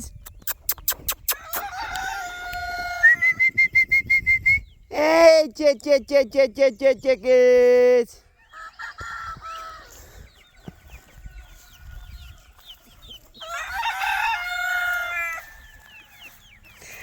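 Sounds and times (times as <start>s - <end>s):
small birds chirping: 0.0s - 17.0s
rooster crowing: 1.4s - 3.3s, 8.4s - 10.0s, 13.4s - 16.2s.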